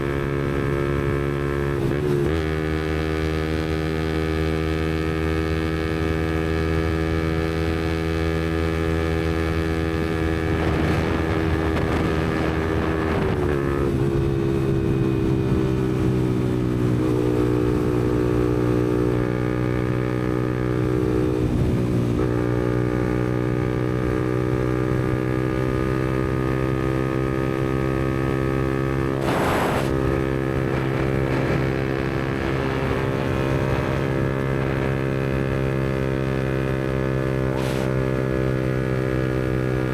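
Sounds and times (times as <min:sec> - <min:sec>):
motorcycle engine cruising: 0:00.0 - 0:39.9
brief burst of noise: 0:29.2 - 0:30.0, 0:37.6 - 0:38.0.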